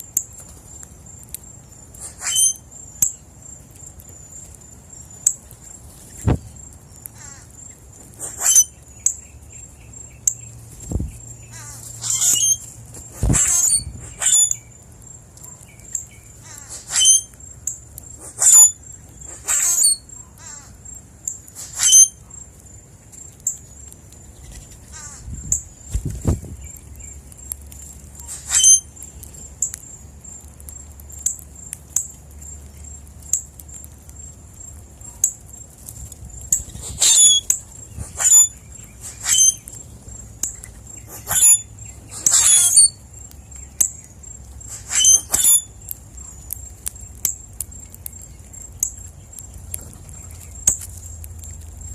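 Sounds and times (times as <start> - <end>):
birds calling: 5.6 - 14.8, 15.5 - 17.4, 18.0 - 22.2, 23.8 - 27.6, 36.5 - 47.2.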